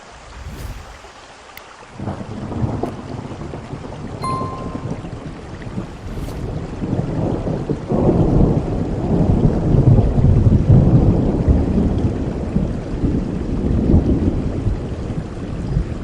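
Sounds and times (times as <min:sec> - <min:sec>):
heavy rain: 0:00.0 - 0:04.2, 0:05.2 - 0:16.0.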